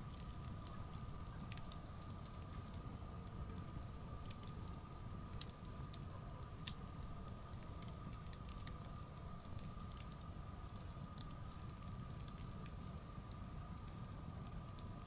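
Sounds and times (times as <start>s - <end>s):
bonfire crackling and popping: 0.0s - 15.0s
low rumble of fire: 0.0s - 15.0s.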